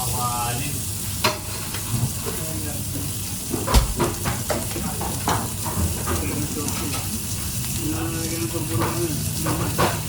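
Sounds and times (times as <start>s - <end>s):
food sizzling in a pan: 0.0s - 10.0s
kitchen utensils clattering: 3.6s - 7.0s.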